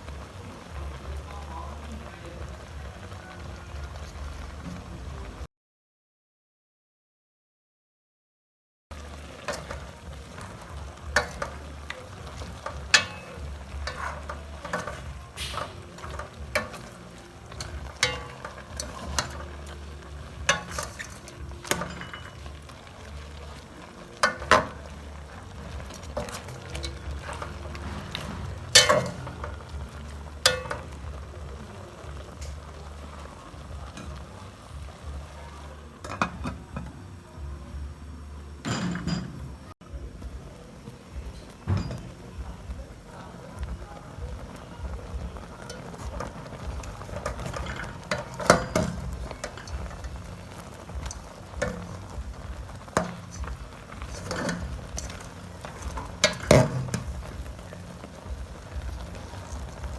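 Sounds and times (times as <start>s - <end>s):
meat sizzling: 0.0s - 5.4s, 8.9s - 38.2s, 39.8s - 59.9s
utensil scraping a pan: 9.1s - 31.4s, 45.4s - 58.1s.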